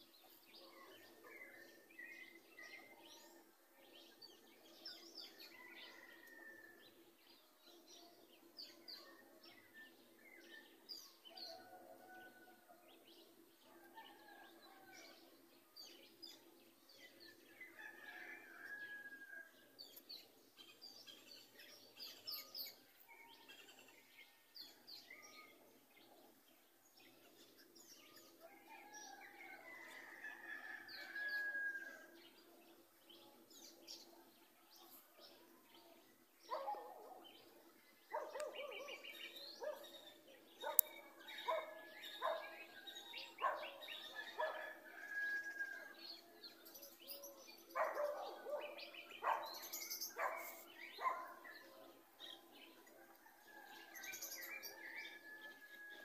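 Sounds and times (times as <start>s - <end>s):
birds chirping: 36.5s - 42.6s, 43.3s - 45.1s, 46.6s - 51.7s.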